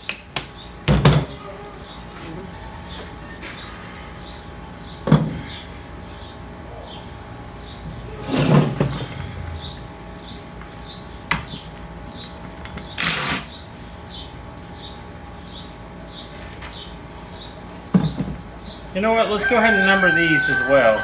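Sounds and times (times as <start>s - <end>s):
faint high chirp: 19.2s - 21.0s.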